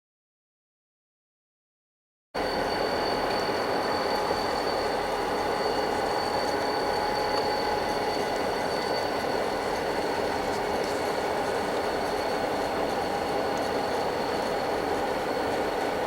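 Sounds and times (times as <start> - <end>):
high-pitched wheel squeal: 2.4 - 11.2
freight train rumbling by: 2.4 - 16.0.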